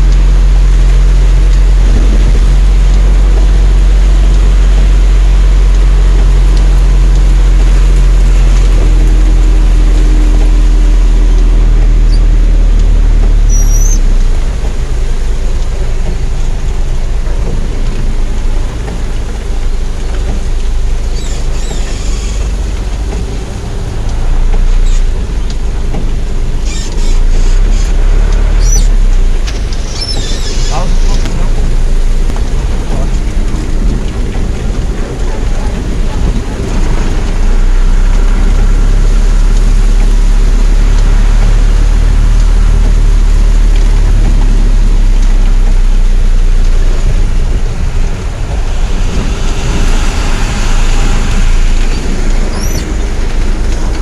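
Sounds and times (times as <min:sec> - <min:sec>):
heavy rain on car roof: 0:00.0 - 0:54.0
low rumble of moving car: 0:00.0 - 0:54.0.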